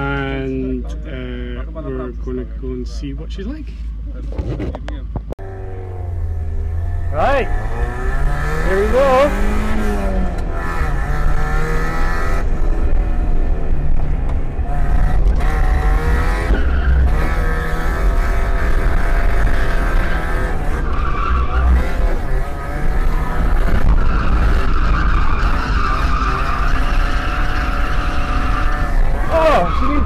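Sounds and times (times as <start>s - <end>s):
car engine revving: 5.4s - 30.0s
tyres squealing: 27.6s - 30.0s.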